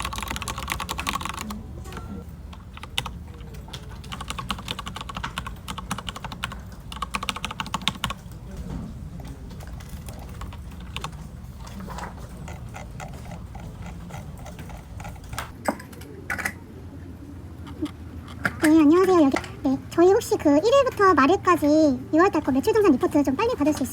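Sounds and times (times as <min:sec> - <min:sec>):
computer keyboard typing: 0:00.0 - 0:15.6
steady low hum: 0:00.0 - 0:23.9.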